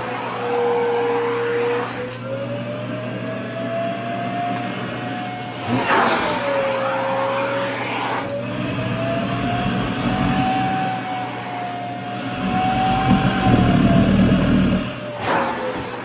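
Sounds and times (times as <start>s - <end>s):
vacuum cleaner whining: 0.0s - 16.0s
heavy low rumble: 8.5s - 10.9s, 12.2s - 14.9s.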